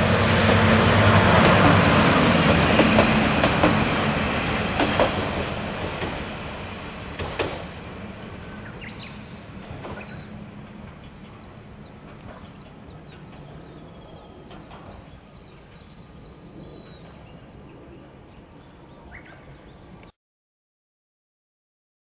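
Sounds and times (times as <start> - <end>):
wild birds chirping and calling: 8.4 - 16.0.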